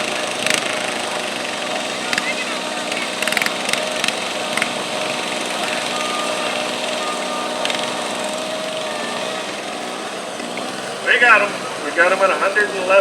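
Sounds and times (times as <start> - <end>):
garden tractor engine under load: 0.0 - 13.0
sharp clicks: 2.0 - 6.7.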